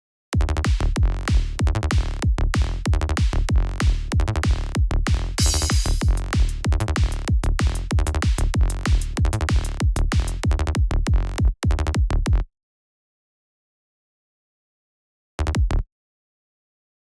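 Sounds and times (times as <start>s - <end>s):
synth bass loop: 0.4s - 11.2s
electronic kick drum: 0.4s - 12.4s, 15.6s - 15.8s.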